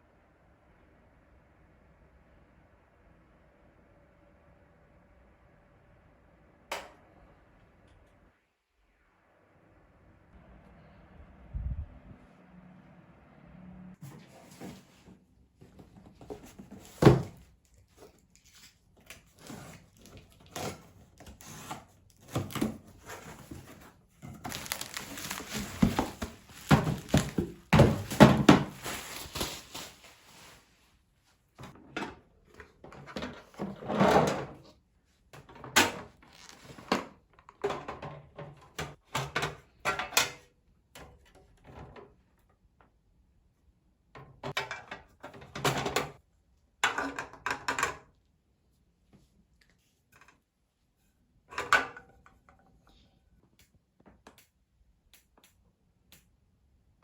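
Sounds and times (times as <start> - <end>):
scraping and rustling: 21.7 - 30.8.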